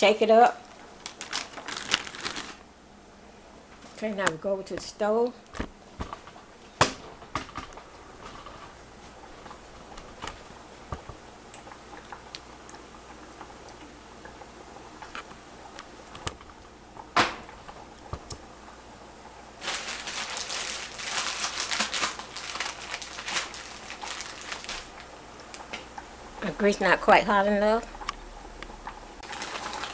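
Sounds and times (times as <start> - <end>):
chicken sizzling in grease: 19.4 - 29.9.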